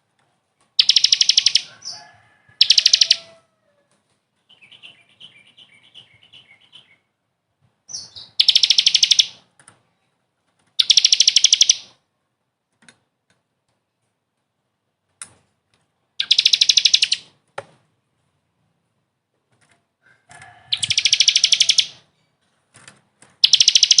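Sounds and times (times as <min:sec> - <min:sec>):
songbird buzzy trills: 0:00.8 - 0:01.9, 0:07.9 - 0:09.4, 0:10.8 - 0:11.9, 0:16.2 - 0:17.3, 0:20.7 - 0:22.0, 0:23.4 - 0:24.0
bird chips: 0:00.8 - 0:03.3, 0:16.2 - 0:17.3, 0:20.4 - 0:22.0, 0:23.4 - 0:24.0.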